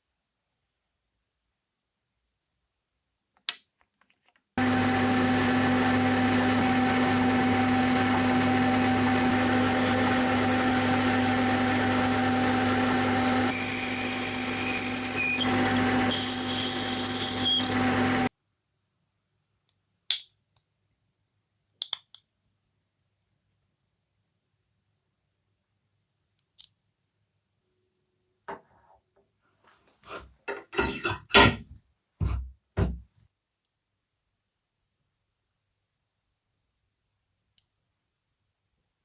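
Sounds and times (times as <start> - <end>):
power tool humming and whining: 4.6 - 18.3.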